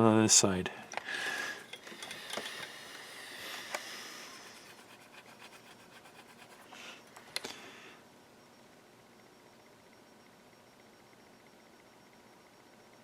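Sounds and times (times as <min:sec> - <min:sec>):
metal tool scratching circuit board: 0:04.4 - 0:06.7.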